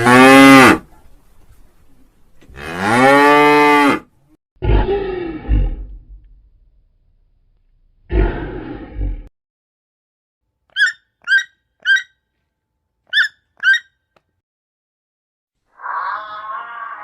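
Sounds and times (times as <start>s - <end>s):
rough animal roar: 2.5s - 6.0s, 15.7s - 17.0s.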